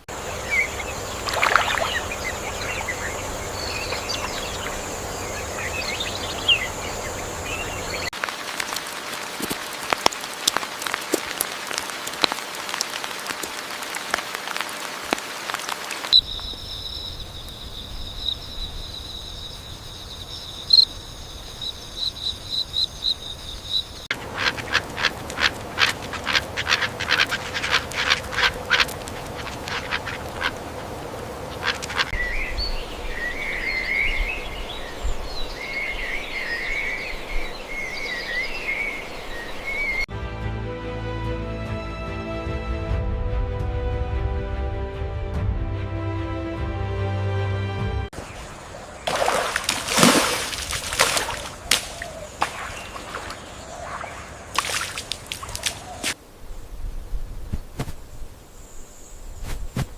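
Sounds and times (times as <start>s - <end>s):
bird chirps: 0.4s - 8.1s, 16.1s - 30.6s
dense crackle of clicks: 8.2s - 16.2s
rapid repeated animal calls: 24.1s - 30.9s, 31.5s - 32.2s.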